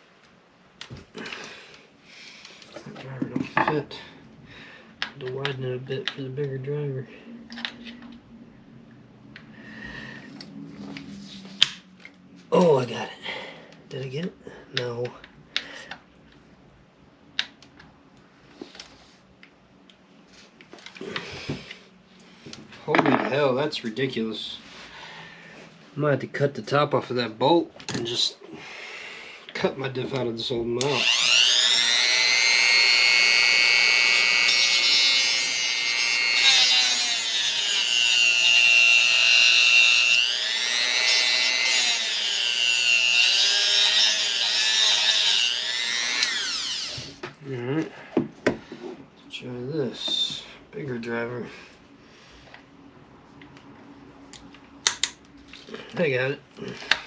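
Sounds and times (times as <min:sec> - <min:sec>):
rotary tool whining cutting metal: 0:30.8 - 0:47.1.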